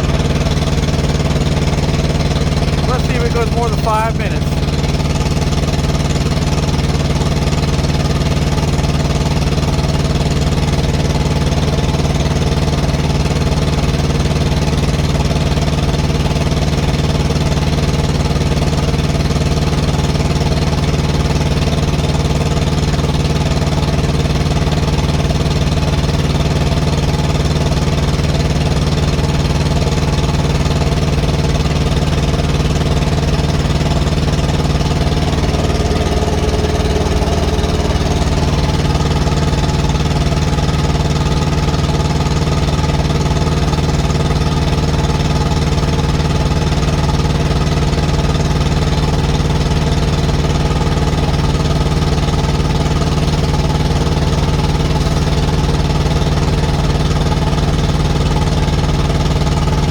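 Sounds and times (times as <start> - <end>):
diesel engine running: 2.1 - 5.5, 32.7 - 40.8.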